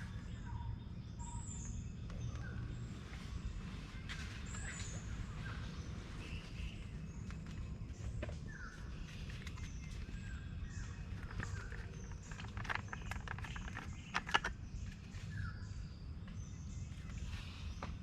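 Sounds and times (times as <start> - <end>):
bird chirping: 0.0 - 18.0
steady low rumble: 0.0 - 18.0
sharp clicks and cracks: 11.2 - 15.0.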